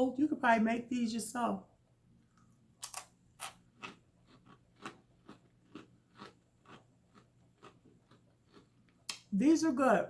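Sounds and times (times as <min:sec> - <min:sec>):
person chewing crunchy crisps: 0:02.8 - 0:09.2.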